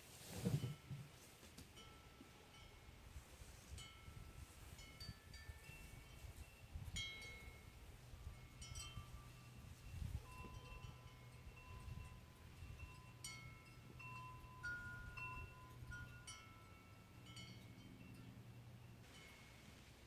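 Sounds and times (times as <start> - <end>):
metal chimes ringing: 3.8 - 19.8.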